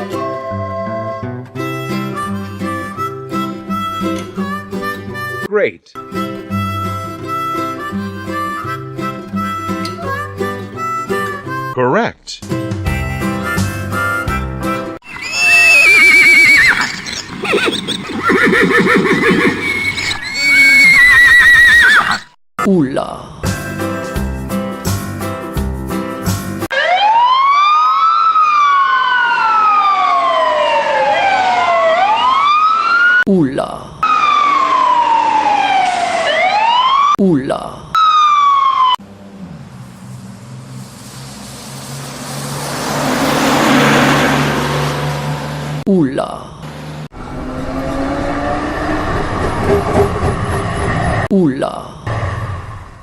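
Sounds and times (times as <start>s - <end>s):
horse neighing: 15.0s - 22.3s
low fluttering horse calls: 15.1s - 22.3s
rushing noise: 39.0s - 45.8s, 47.1s - 51.3s
low engine hum: 39.0s - 45.9s.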